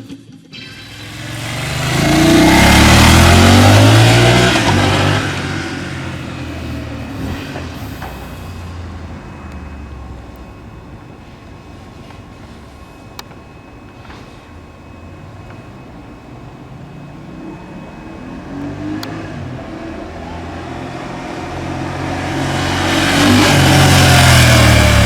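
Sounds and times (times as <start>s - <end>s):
motorcycle passing by: 0.6s - 10.6s, 16.7s - 25.0s.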